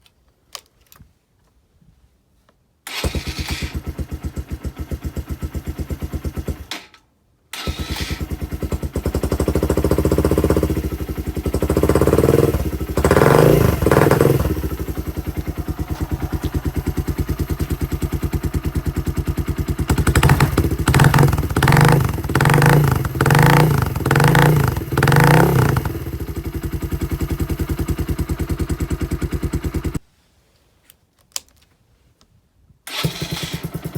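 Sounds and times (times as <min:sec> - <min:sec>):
motorcycle engine revving: 0:03.0 - 0:06.7, 0:07.6 - 0:30.0, 0:32.9 - 0:33.9
motorcycle engine idling: 0:03.8 - 0:06.7, 0:08.1 - 0:30.0.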